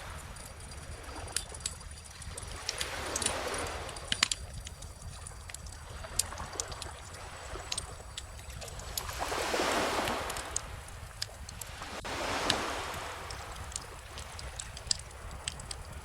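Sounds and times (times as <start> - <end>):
ocean waves washing in: 0.0 - 16.0
bonfire crackling: 1.3 - 16.0.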